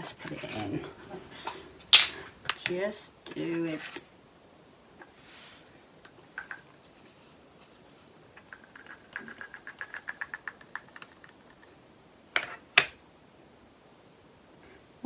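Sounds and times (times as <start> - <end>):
resin beads rattling into plastic pot: 5.3 - 7.0, 8.2 - 11.6.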